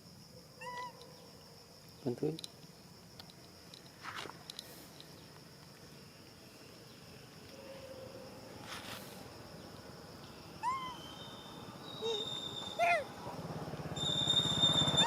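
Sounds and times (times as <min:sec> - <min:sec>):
high-pitched insect drone: 0:09.2 - 0:15.0.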